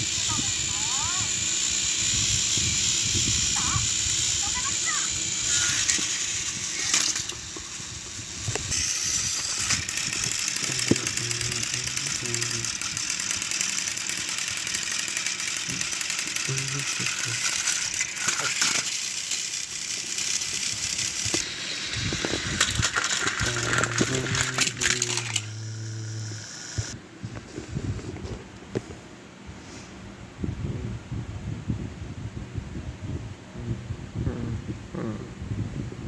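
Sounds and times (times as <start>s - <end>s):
toy trains rattling clicks: 0.0s - 27.0s.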